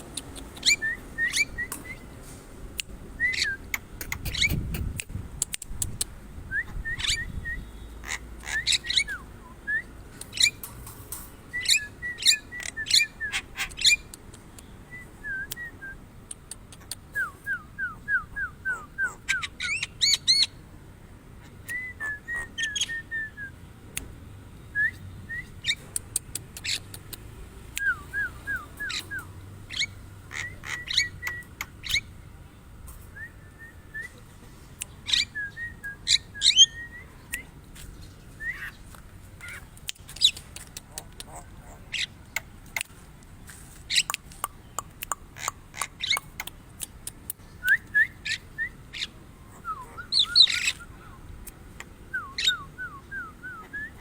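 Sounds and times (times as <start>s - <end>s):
bird calling whistles and chirps: 0.6s - 2.0s, 6.6s - 7.8s, 47.6s - 51.0s, 52.1s - 54.0s.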